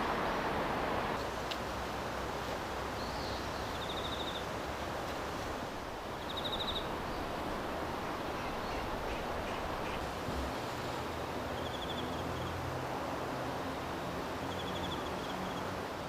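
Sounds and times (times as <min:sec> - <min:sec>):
steady rushing hiss: 0:00.0 - 0:11.6
high-pitched trilled calls: 0:06.2 - 0:06.9.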